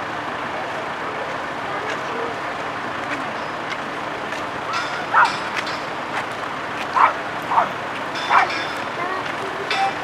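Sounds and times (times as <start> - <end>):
dog barking: 5.1 - 5.4, 7.0 - 8.5.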